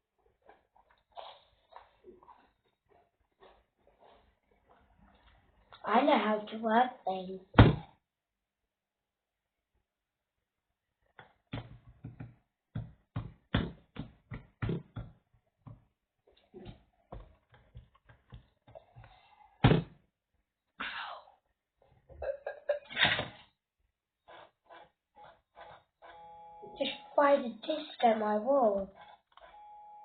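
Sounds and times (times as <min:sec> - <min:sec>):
objects knocking and thumping: 0:11.2 - 0:20.0.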